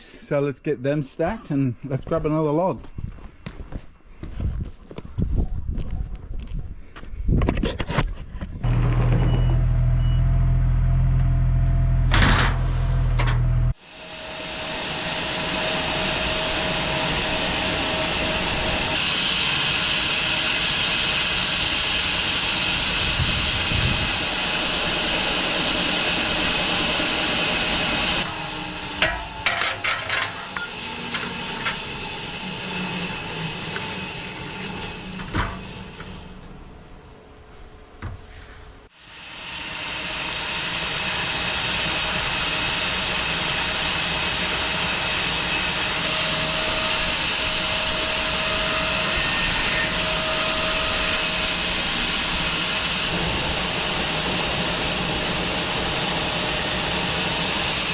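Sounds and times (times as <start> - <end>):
machinery whining: 8.6 - 37.4, 39.3 - 57.9
knocks and clatter: 12.1 - 13.6, 29.0 - 31.8, 34.6 - 36.5.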